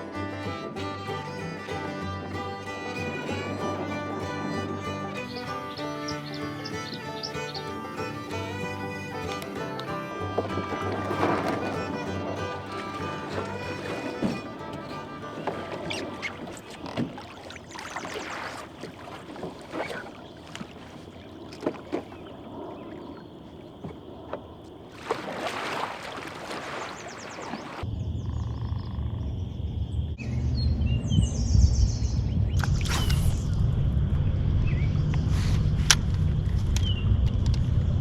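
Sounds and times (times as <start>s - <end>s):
canoe paddle strokes: 0.4s - 27.8s
water splashing: 0.8s - 7.5s, 8.3s - 27.8s
bird chirps: 13.1s - 24.8s, 25.7s - 29.4s.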